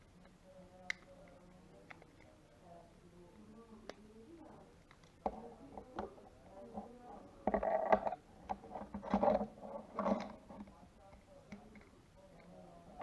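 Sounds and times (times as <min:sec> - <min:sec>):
plastic parts scraping and rattling: 0:07.5 - 0:10.7.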